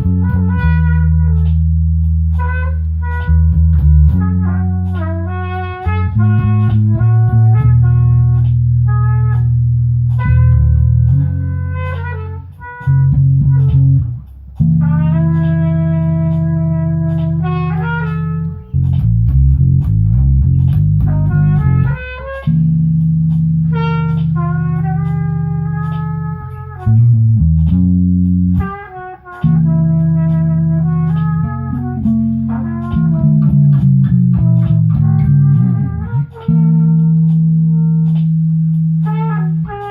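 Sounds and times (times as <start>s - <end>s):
bass line: 0.0s - 39.9s
guitar chords: 0.0s - 39.9s.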